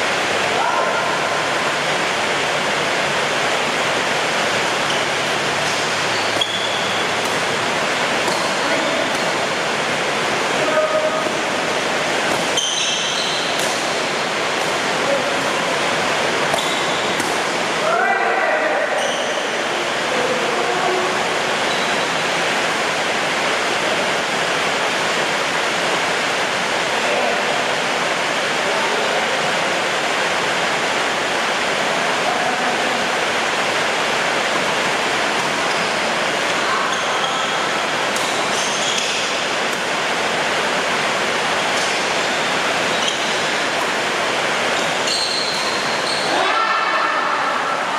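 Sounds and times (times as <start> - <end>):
heavy rain falling: 0.0 - 47.9
brief high squeak: 6.1 - 7.0, 12.6 - 13.5, 38.5 - 39.3, 45.0 - 46.4.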